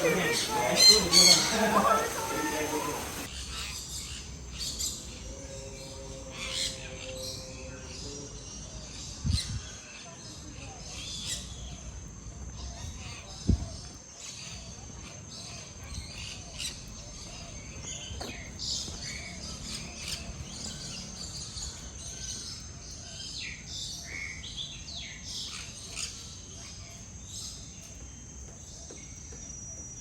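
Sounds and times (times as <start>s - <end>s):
birds chirping: 0.0s - 11.8s.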